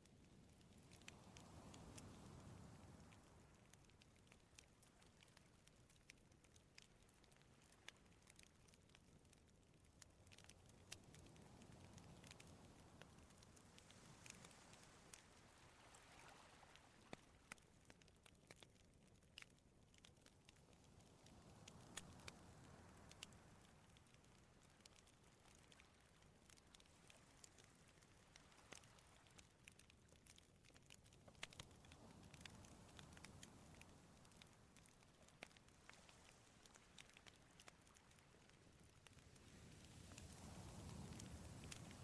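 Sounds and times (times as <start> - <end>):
campfire crackling and popping: 0.0 - 42.0
sea waves washing: 11.1 - 17.4, 39.2 - 42.0.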